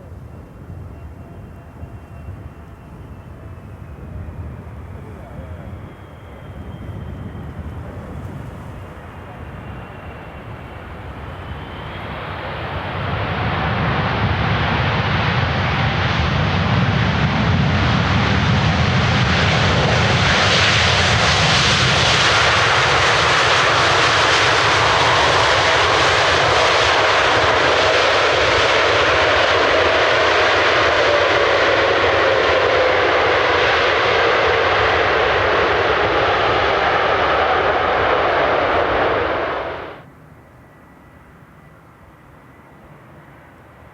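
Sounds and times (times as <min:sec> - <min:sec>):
jet airliner engines roaring: 0:00.0 - 0:43.9.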